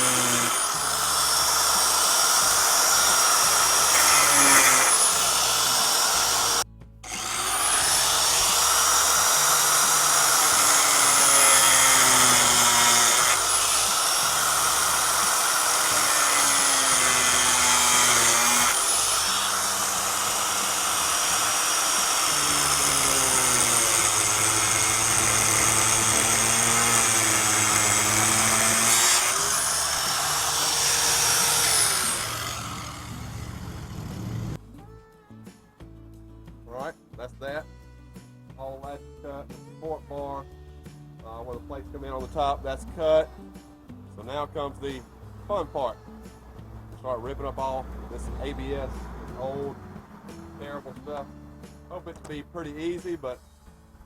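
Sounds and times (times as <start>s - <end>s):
angle grinder cutting plastic: 0.0s - 34.6s.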